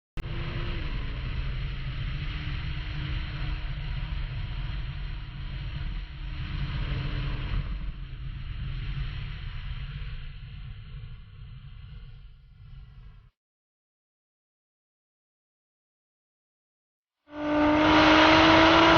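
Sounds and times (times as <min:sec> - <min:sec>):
deep rumble: 0:00.2 - 0:13.3
steady rushing noise: 0:01.1 - 0:12.8.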